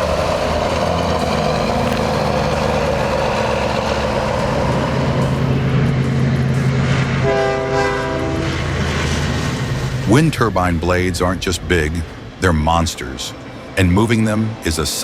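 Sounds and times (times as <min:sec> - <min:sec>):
heavy diesel engine running: 0:00.0 - 0:14.7
multi-note air horn: 0:07.2 - 0:08.6.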